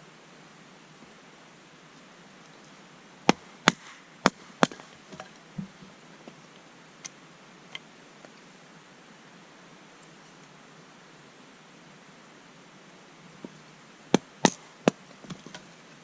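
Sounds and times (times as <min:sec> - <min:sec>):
sharp cracks: 0:03.3 - 0:05.8, 0:14.2 - 0:15.6.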